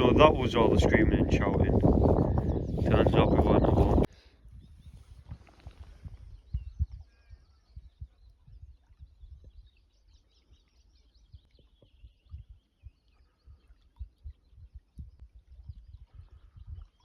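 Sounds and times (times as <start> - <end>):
birds chirping and twittering: 0.0 - 4.1.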